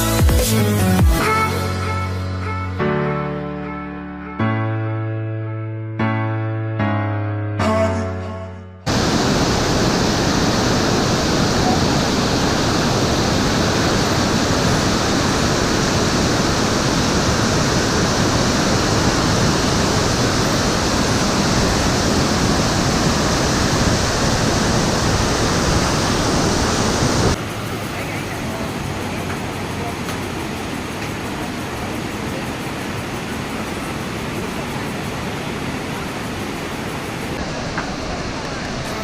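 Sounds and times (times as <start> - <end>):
waterfall rushing: 8.9 - 39.0.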